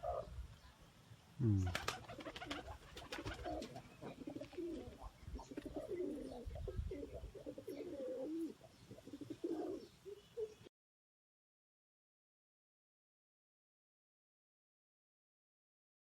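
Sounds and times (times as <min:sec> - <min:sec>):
pigeons cooing: 0:00.0 - 0:00.3, 0:01.4 - 0:10.7.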